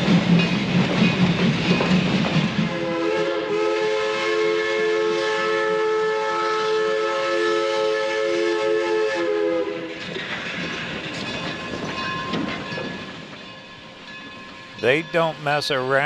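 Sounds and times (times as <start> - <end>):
steam locomotive chime whistle: 2.6 - 10.2, 11.6 - 16.0.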